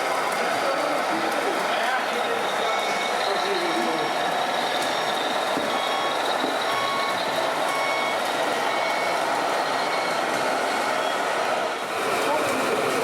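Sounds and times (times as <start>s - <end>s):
reversing beeper short beeps: 2.1s - 10.2s.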